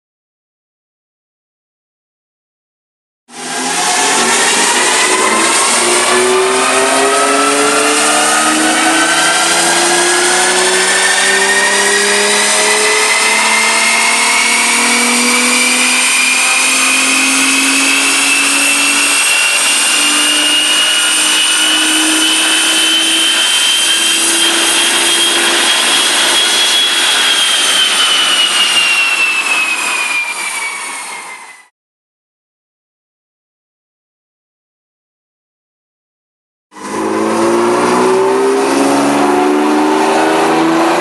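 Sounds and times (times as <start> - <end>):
car engine revving under load: 3.4 - 26.4, 36.8 - 41.0.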